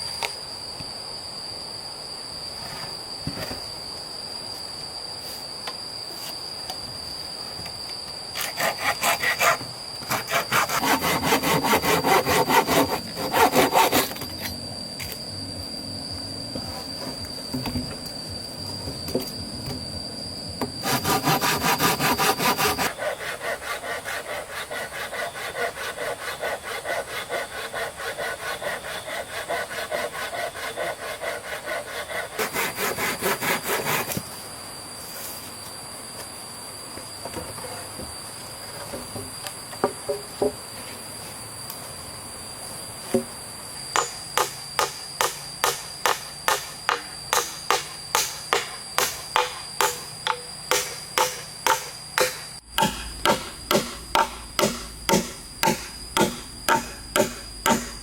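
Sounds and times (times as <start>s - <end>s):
hand saw cutting wood: 8.4s - 14.3s, 20.8s - 34.2s, 50.7s - 58.0s
sharp blows on wood: 44.0s - 58.0s.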